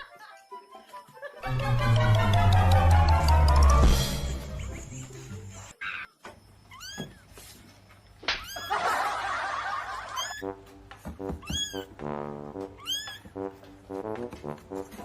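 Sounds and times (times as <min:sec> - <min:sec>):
background music: 0:00.0 - 0:05.7, 0:09.8 - 0:15.0
cat meowing: 0:06.7 - 0:07.2, 0:08.3 - 0:08.8, 0:10.2 - 0:10.4, 0:11.4 - 0:11.9, 0:12.7 - 0:13.3.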